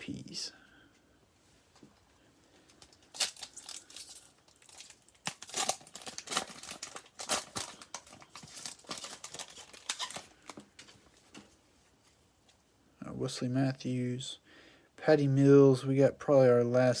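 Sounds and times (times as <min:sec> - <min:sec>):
wrapper tearing and crinkling: 0:02.7 - 0:10.9.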